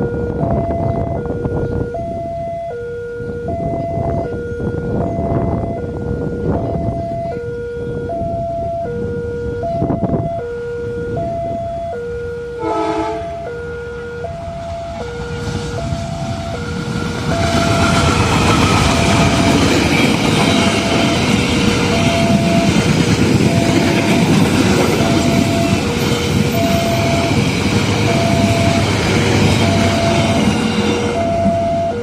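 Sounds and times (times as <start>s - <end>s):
train locomotive and wheels rumbling: 0.0s - 32.0s
train horn blast: 12.3s - 14.1s, 15.0s - 19.6s.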